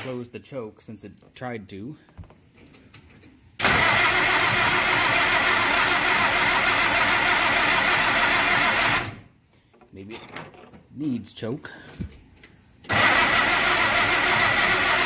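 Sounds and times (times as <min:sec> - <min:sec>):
engine cranking on starter: 0:03.6 - 0:09.2, 0:12.9 - 0:15.0.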